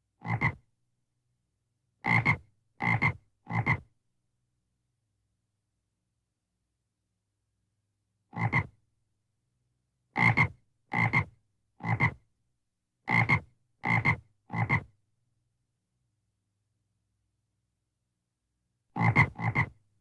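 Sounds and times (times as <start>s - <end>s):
frog croaking: 19.0s - 19.7s.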